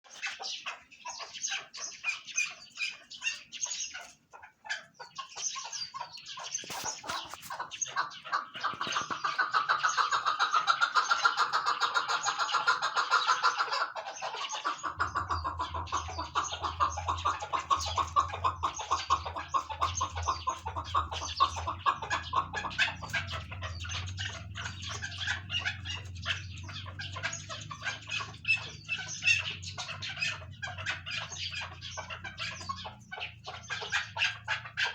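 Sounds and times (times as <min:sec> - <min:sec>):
partridges clucking: 0:06.0 - 0:11.4.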